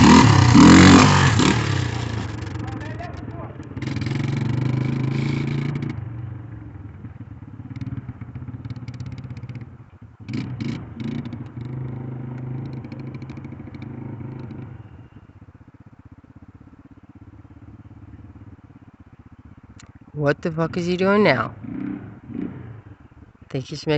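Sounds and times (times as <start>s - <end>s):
dirt bike engine revving: 0.0s - 9.6s, 10.2s - 15.2s, 20.5s - 23.1s.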